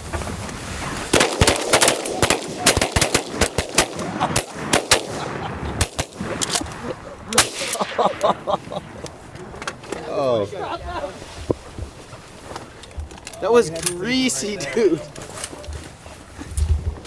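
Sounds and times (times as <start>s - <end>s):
shotgun volley: 1.2s - 10.0s.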